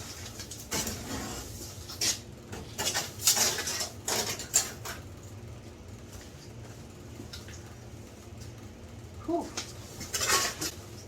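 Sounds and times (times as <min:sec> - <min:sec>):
objects scraping and clattering: 0:00.0 - 0:05.1, 0:09.7 - 0:10.9.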